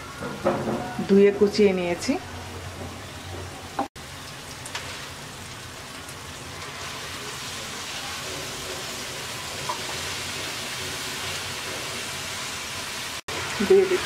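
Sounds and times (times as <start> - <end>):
masala sizzling in oil: 4.0 - 14.0.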